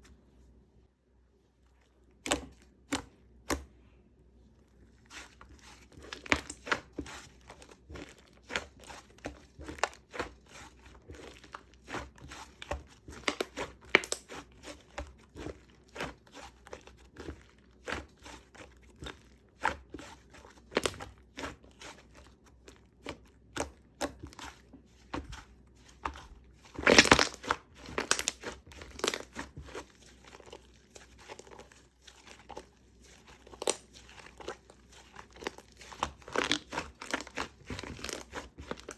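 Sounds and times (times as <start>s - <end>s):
slime crackling and popping: 11.2s - 14.8s, 26.0s - 38.9s.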